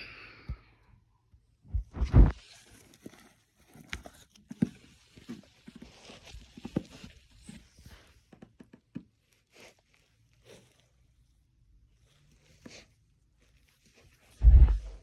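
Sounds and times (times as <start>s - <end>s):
heavy thump: 14.4s - 15.0s.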